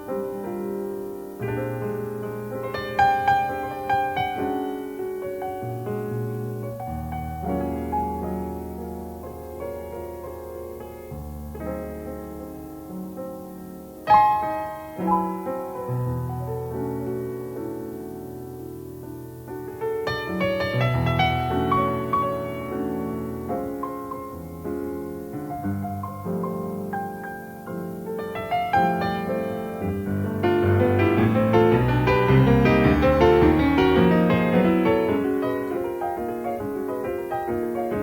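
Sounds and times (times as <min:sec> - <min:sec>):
jazz piano: 0:00.0 - 0:38.0.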